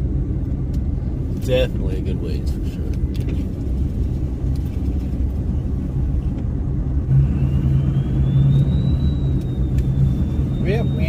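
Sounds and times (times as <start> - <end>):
diesel truck engine running: 0.0 - 11.0
faint high whine: 7.1 - 11.0.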